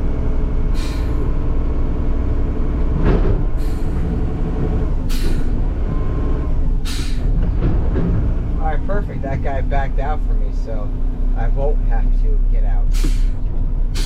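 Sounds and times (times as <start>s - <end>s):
diesel engine running: 0.0s - 14.0s
air brake hisses: 0.7s - 1.4s, 3.6s - 4.2s, 5.1s - 5.6s, 6.8s - 7.4s, 12.9s - 14.0s.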